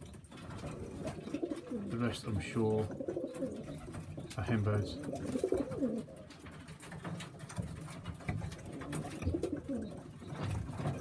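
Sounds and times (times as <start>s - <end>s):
pigeon cooing: 1.0s - 1.9s, 2.8s - 4.0s, 4.8s - 6.4s, 8.6s - 10.3s.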